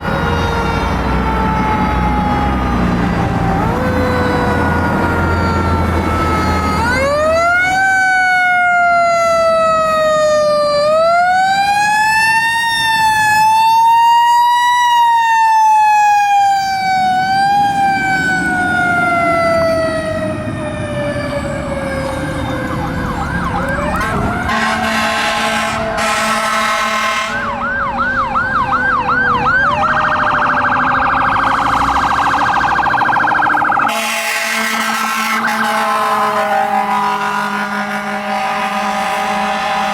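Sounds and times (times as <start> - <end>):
fast high siren tone: 0.0 - 39.9
wailing siren: 0.0 - 39.9
yelping siren: 0.0 - 39.9
horn blasts: 23.9 - 27.6, 33.9 - 39.9.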